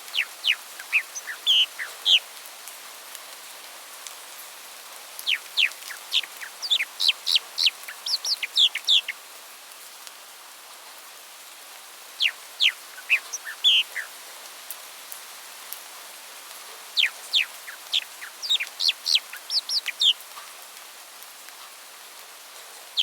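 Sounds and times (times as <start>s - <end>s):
songbird singing: 0.0s - 2.3s, 5.2s - 9.2s, 12.2s - 14.3s, 16.8s - 20.2s
steady background hiss: 0.0s - 23.0s.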